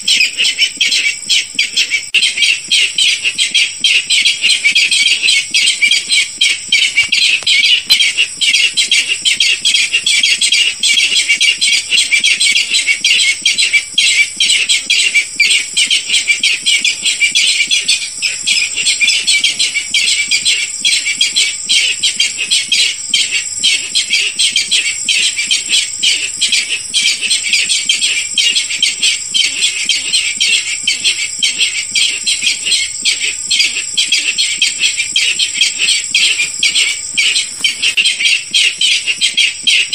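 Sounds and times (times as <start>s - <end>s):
rail calling harsh notes: 29.4s - 39.9s.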